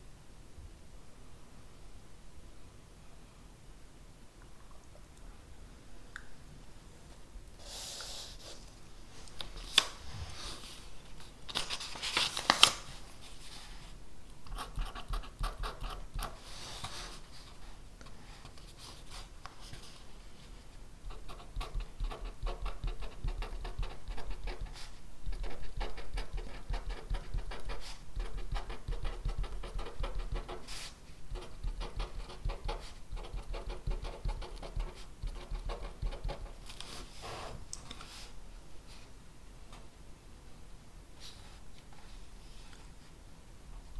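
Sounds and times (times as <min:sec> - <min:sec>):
pen scratching on paper: 0:14.5 - 0:16.4, 0:21.1 - 0:36.6.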